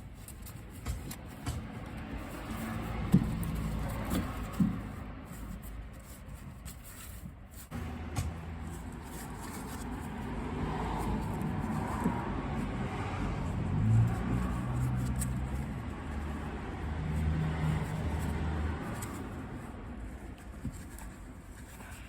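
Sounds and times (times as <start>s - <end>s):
sharp knocks: 0.7s - 2.2s.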